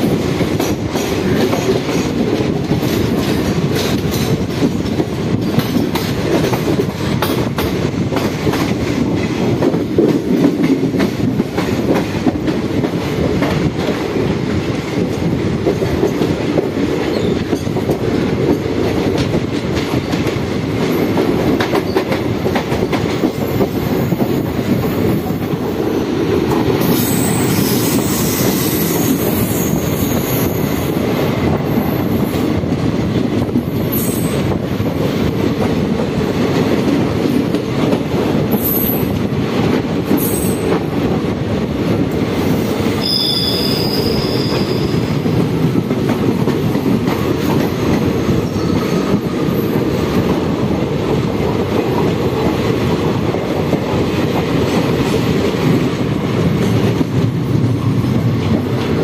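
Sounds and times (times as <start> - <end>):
train rumbling on rails: 0.0 - 59.0
high wheel squeal: 43.0 - 45.2.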